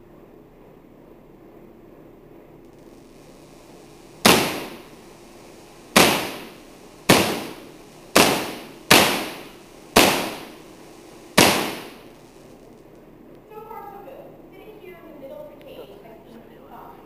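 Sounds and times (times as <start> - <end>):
high-voltage spark cracks: 2.7 - 13.0.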